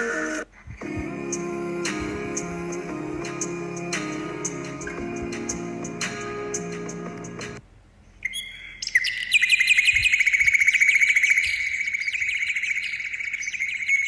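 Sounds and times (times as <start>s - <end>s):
small bird chirping: 8.2s - 14.0s.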